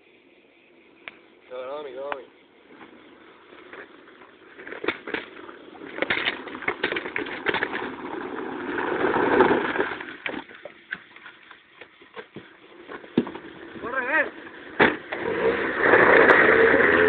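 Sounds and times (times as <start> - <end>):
car engine and tyre noise: 0.0 - 17.0.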